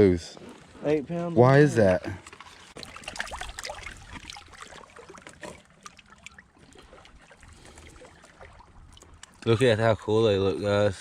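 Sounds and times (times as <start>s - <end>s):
water trickling and splashing: 0.4s - 11.0s.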